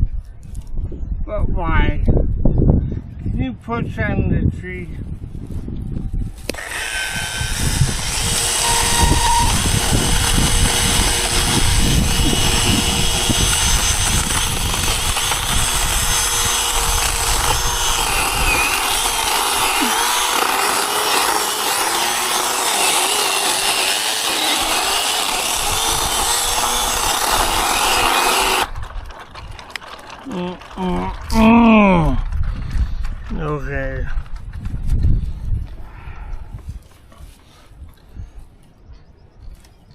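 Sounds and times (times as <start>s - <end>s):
chainsaw cutting tree trunk: 6.4s - 28.9s.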